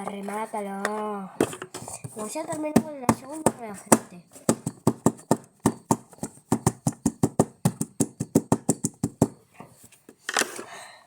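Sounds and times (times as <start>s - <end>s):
rapid taps on hard surface: 2.4s - 9.4s.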